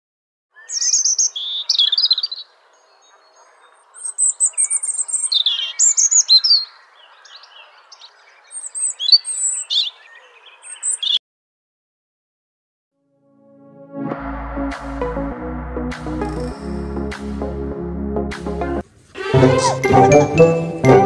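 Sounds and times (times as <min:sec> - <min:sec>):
songbirds chirping and trilling: 0:00.5 - 0:11.2
faint outdoor hiss: 0:18.8 - 0:19.3.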